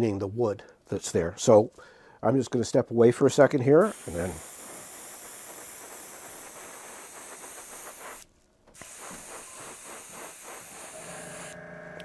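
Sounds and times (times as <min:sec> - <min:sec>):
airbrush compressor air hiss: 0:03.8 - 0:11.6.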